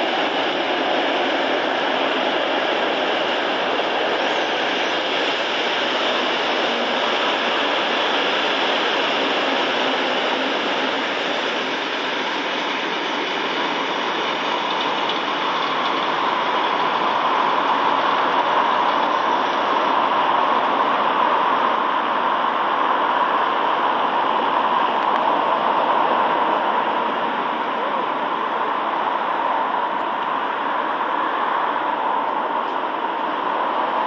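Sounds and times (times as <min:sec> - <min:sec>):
freight train wheels rumbling: 0:00.0 - 0:34.0.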